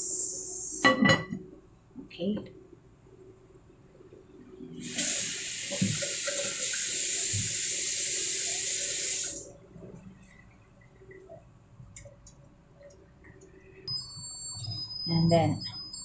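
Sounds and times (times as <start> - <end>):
tap running into a sink: 4.8 - 9.4.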